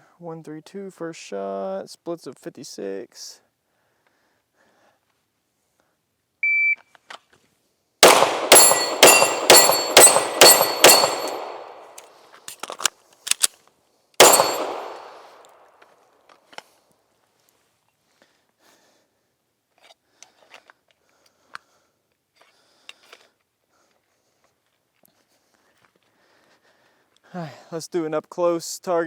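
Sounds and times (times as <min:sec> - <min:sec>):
shot timer beep: 0:06.4 - 0:06.8
handgun shots: 0:08.0 - 0:12.0, 0:14.2 - 0:15.5.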